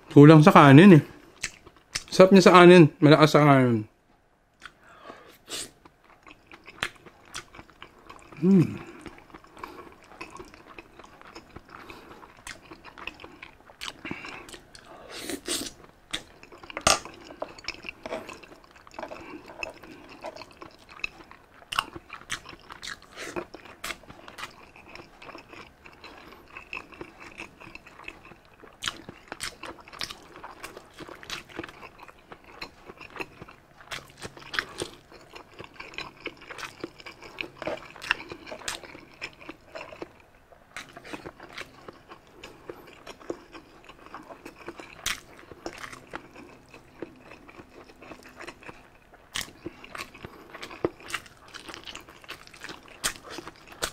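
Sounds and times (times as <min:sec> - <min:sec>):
chewing and crunching food: 0:00.0 - 0:02.7, 0:04.1 - 0:53.9
low vocal grunt: 0:08.4 - 0:08.9.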